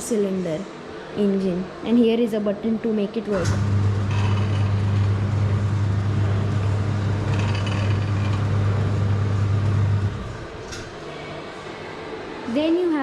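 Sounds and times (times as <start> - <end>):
electric motor hum: 3.2 - 11.1.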